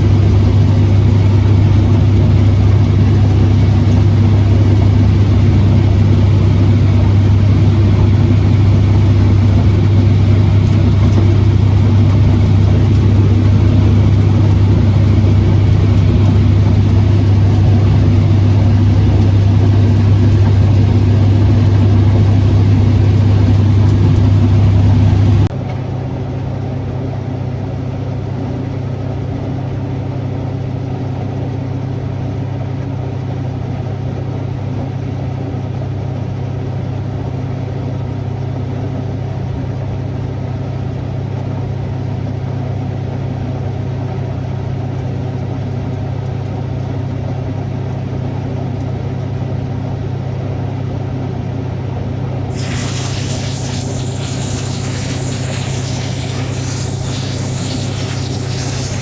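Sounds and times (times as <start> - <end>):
farm machinery engine running: 0.0 - 25.5
quieter higher engine drone: 0.0 - 25.5, 52.5 - 59.0.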